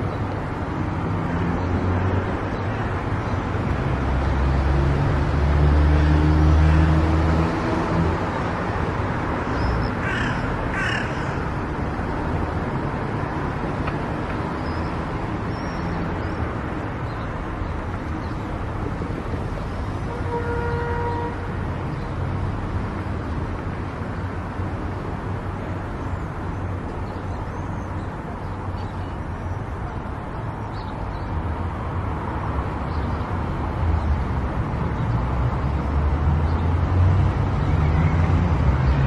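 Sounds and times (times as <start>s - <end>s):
car road and tyre noise: 0.0s - 39.0s
harsh cawing calls: 10.0s - 11.7s.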